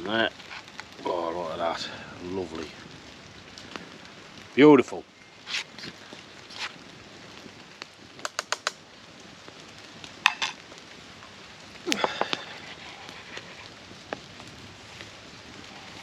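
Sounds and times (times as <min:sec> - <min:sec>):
faint steady hiss: 0:00.0 - 0:16.0
cutlery and cookware clinking: 0:10.3 - 0:10.6.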